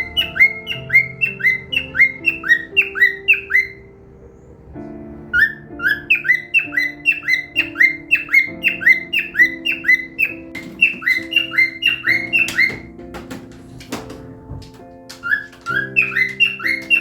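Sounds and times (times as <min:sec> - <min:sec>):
cockatiel chirping: 0:00.0 - 0:03.9, 0:05.4 - 0:13.0, 0:15.2 - 0:17.0.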